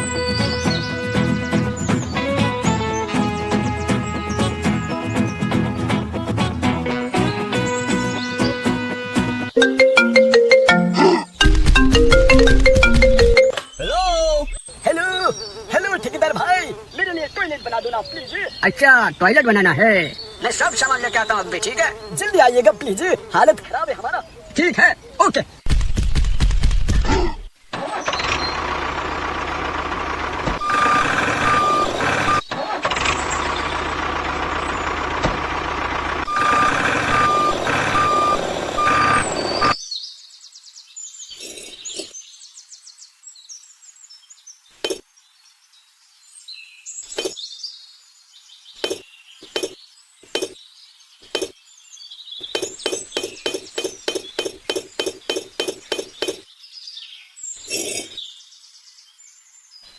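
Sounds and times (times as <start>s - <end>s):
truck engine running: 11.4s - 13.5s, 27.8s - 39.8s
reversing beeps: 30.6s - 32.5s, 36.3s - 39.8s.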